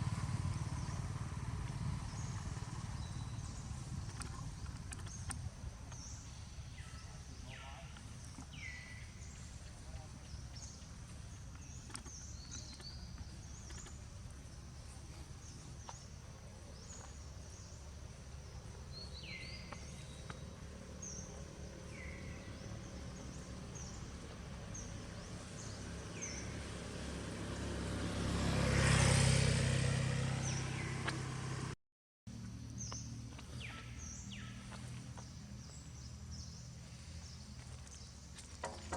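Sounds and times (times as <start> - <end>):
vehicle passing: 0.0 - 5.1, 16.8 - 31.8
birds chirping: 0.1 - 27.1, 30.0 - 31.3, 32.7 - 38.9.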